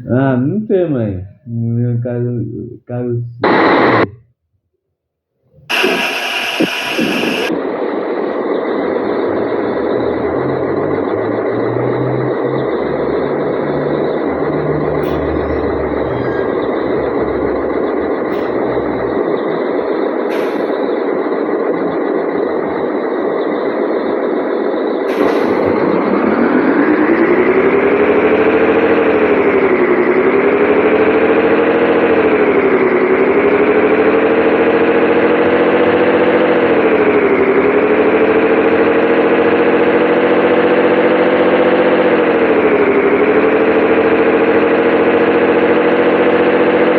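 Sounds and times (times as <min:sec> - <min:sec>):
truck diesel engine revving: 0:05.6 - 0:07.7, 0:08.3 - 0:46.9.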